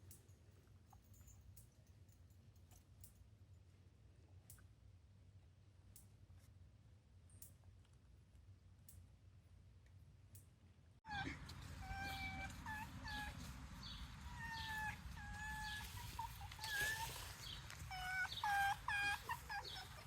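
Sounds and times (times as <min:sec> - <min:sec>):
fox making high whining calls: 0:11.1 - 0:20.0.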